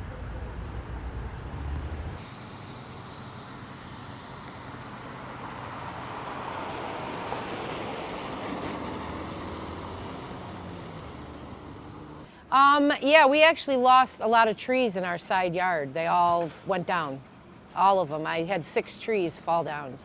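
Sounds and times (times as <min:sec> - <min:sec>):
vehicle passing: 0:00.0 - 0:12.3
low traffic rumble: 0:00.0 - 0:20.0.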